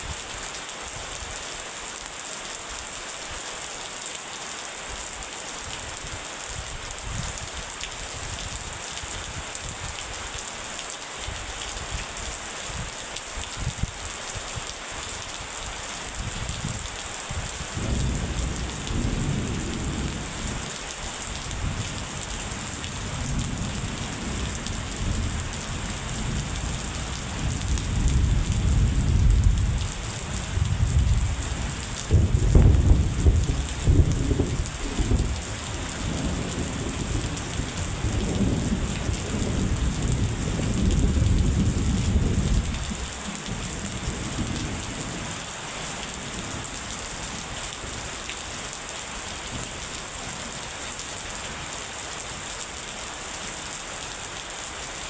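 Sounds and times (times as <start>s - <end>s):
heavy rain hissing: 0.0s - 55.0s
deep rolling thunder: 17.8s - 20.8s, 21.4s - 43.1s.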